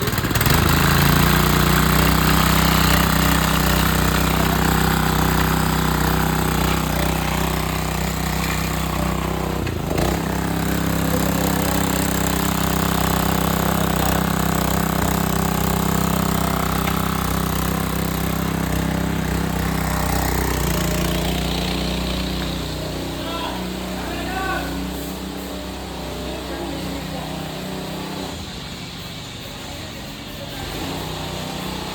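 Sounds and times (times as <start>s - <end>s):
engine knock: 0.0s - 23.7s
small pump engine running: 0.0s - 31.9s.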